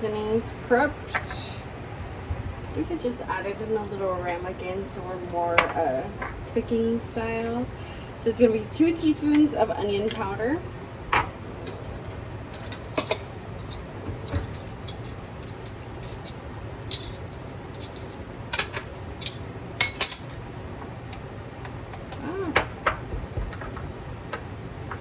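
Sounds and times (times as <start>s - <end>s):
steady low hum: 0.0s - 25.0s
spoons and jars clinking: 12.6s - 20.3s.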